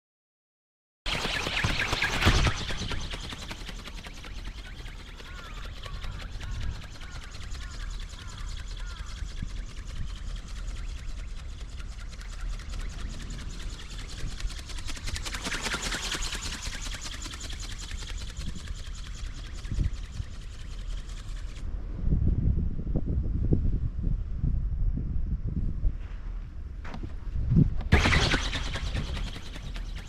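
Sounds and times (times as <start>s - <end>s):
wind on microphone: 1.1s - 30.0s
electric motor buzzing rattle: 1.2s - 21.6s.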